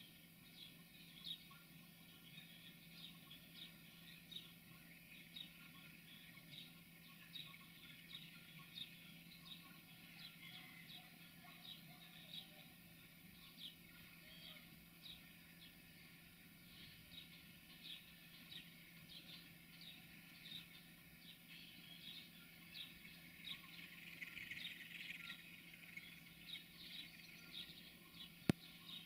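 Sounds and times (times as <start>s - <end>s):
small bird chirping: 0.0s - 29.0s.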